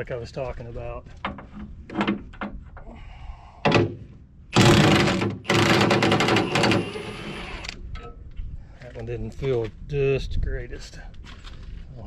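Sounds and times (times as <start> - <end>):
impact wrench hammering on bolt: 4.6 - 7.1.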